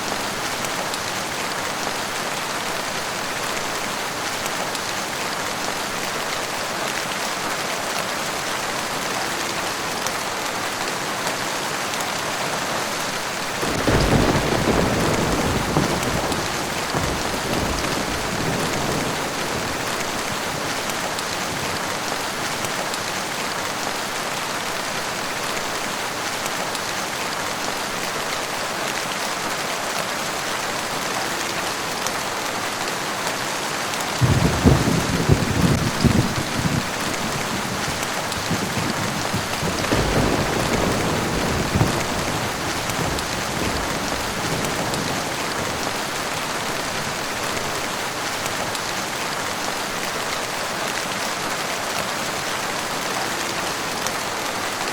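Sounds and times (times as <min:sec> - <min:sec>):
steady rain falling: 0:00.0 - 0:54.9
thunder rumbling: 0:13.6 - 0:22.0, 0:34.2 - 0:48.0.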